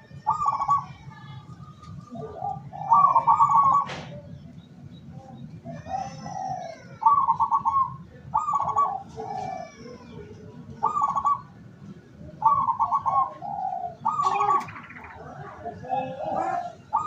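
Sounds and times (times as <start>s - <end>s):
dove cooing: 0.0s - 1.0s, 2.0s - 4.3s, 5.6s - 11.6s, 12.2s - 17.0s.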